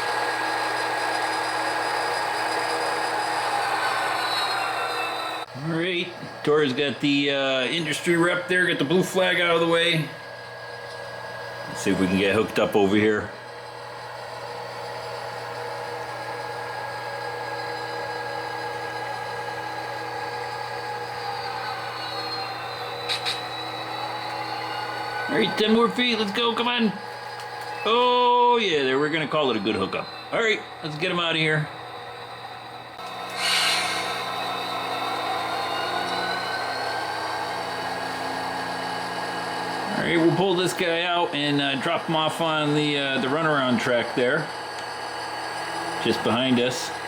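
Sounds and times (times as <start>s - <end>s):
model train diesel engine sound: 0.0s - 47.0s
faint rising whine: 0.3s - 10.1s, 18.5s - 44.2s.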